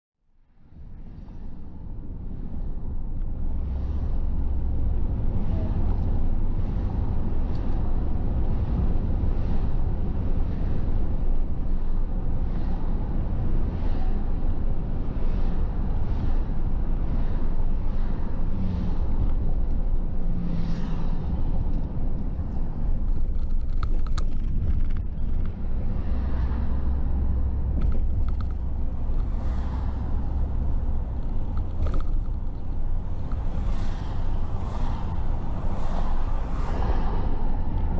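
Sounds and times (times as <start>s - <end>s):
engine and road noise rumble: 0.2s - 37.9s
passing traffic swishes: 0.6s - 37.9s.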